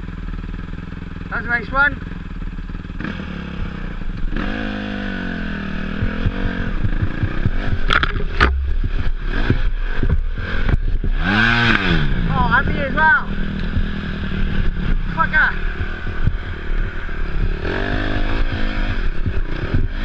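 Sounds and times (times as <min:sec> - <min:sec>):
dirt bike engine revving: 0:00.0 - 0:20.0
bike knocking and clattering: 0:06.0 - 0:11.9.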